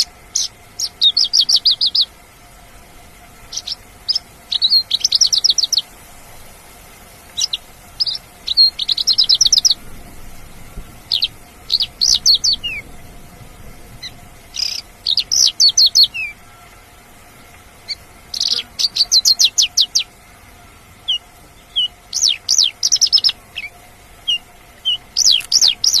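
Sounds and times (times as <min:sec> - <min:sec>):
bird singing fast notes: 0:00.0 - 0:02.1, 0:03.4 - 0:05.9, 0:07.3 - 0:10.0, 0:11.1 - 0:13.0, 0:14.0 - 0:16.4, 0:17.8 - 0:20.1, 0:21.0 - 0:26.0.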